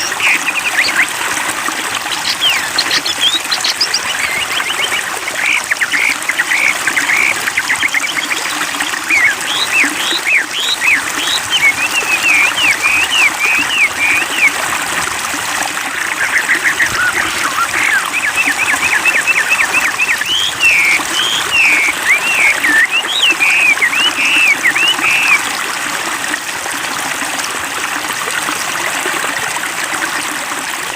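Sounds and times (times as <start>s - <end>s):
bird whistling song: 0.0s - 1.1s, 2.1s - 14.6s, 16.2s - 25.4s
running water: 0.0s - 30.9s.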